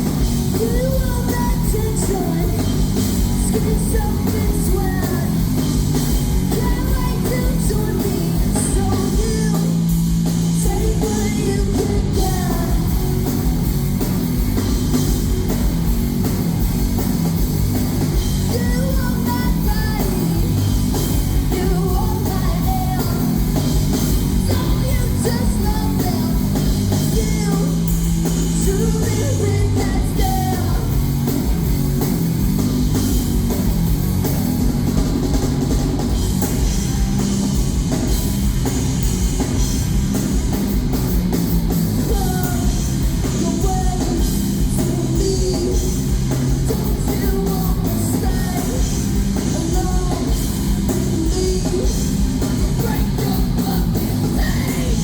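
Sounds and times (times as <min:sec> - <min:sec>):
person singing: 0:00.0 - 0:05.5, 0:06.4 - 0:13.3, 0:18.4 - 0:20.6, 0:21.2 - 0:23.6, 0:24.2 - 0:31.2, 0:42.0 - 0:55.0
rock band playing live: 0:00.0 - 0:55.0.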